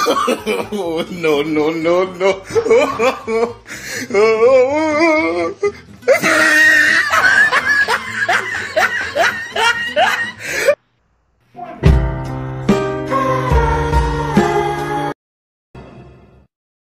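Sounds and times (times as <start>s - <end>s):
loud laughter: 0.0s - 3.6s, 6.1s - 10.8s
music: 0.0s - 10.8s, 11.5s - 15.2s, 15.8s - 16.5s.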